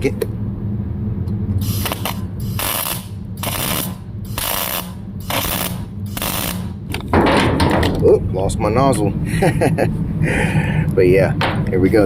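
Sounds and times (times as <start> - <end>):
welder low hum: 0.0 - 7.2
welding arc crackle: 1.6 - 7.0.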